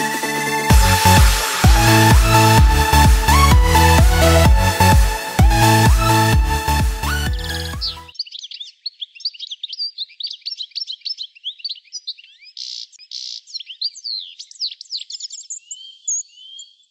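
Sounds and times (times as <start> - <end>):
electronic dance music: 0.0 - 8.1
songbirds chirping and whistling: 7.8 - 16.9.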